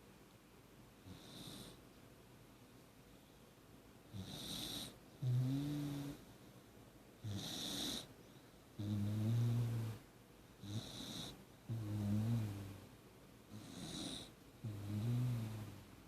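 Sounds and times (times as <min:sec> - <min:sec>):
dog snoring: 0:01.0 - 0:01.8, 0:04.1 - 0:06.3, 0:07.2 - 0:08.1, 0:08.8 - 0:10.0, 0:10.6 - 0:12.8, 0:13.5 - 0:15.8.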